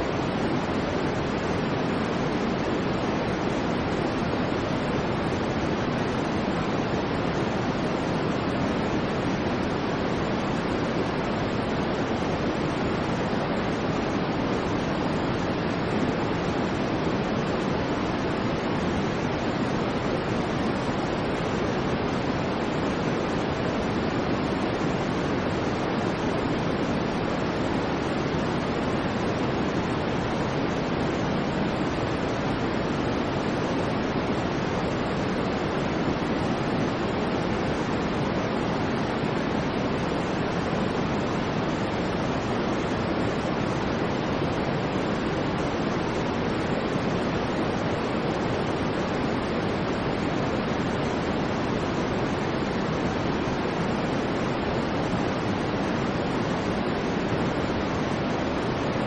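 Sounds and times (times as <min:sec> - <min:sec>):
steady white noise: 0:00.0 - 0:59.0.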